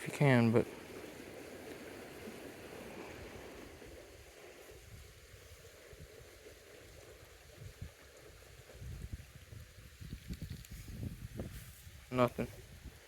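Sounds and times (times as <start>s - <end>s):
creek water rushing: 0.0s - 10.2s
wind buffeting microphone: 0.0s - 13.0s.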